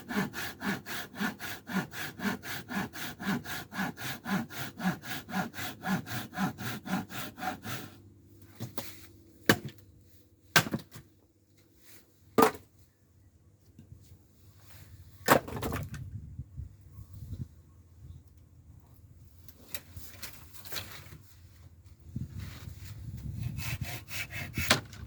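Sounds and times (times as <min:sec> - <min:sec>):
hand saw cutting wood: 0:00.0 - 0:08.0, 0:23.4 - 0:25.0.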